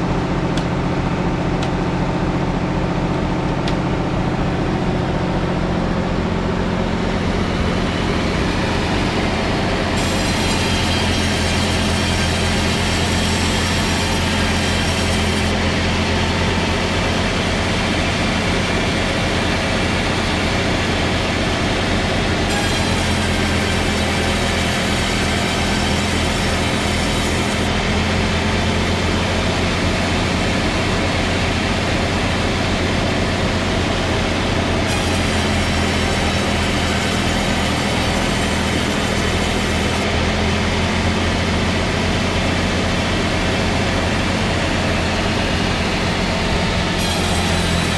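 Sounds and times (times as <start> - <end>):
heavy machine humming: 0.0 - 47.9.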